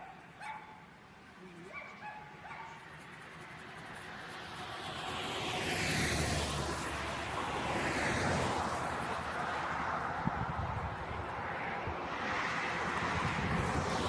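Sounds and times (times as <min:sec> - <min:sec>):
passing vehicle rushing: 0:03.7 - 0:14.0.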